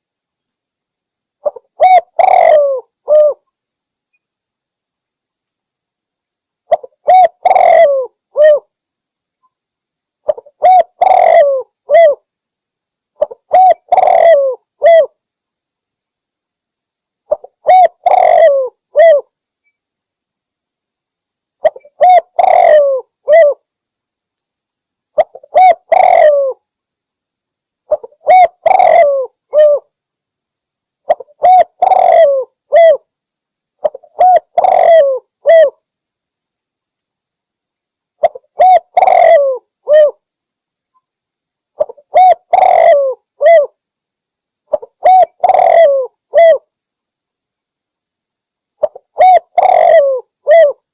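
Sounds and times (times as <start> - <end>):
dove cooing: 1.4 - 3.4, 6.7 - 8.7, 10.3 - 12.2, 13.2 - 15.1, 17.3 - 19.3, 21.6 - 23.6, 25.2 - 26.6, 27.9 - 29.9, 31.1 - 33.0, 33.8 - 35.8, 38.2 - 40.2, 41.8 - 43.8, 44.7 - 46.7, 48.8 - 50.9.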